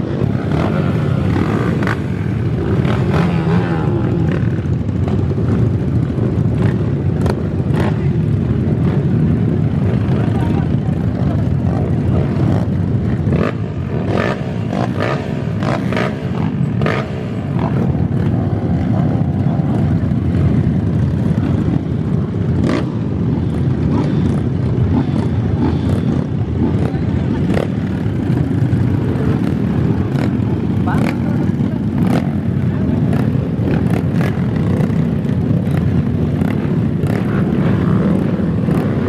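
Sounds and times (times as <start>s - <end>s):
voices of onlookers: 0.0s - 13.3s, 25.0s - 39.0s
motocross bike engines rumbling: 0.0s - 39.0s.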